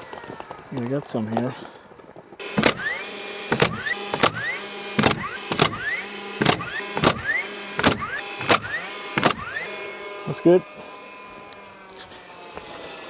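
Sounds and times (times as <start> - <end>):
hammer striking nails into wood: 2.4 - 9.6.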